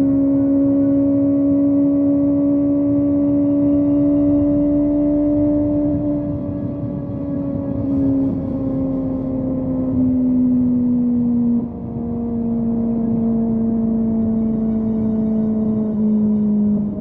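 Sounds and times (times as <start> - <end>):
motorcycle engine at high revs: 0.0 - 7.0.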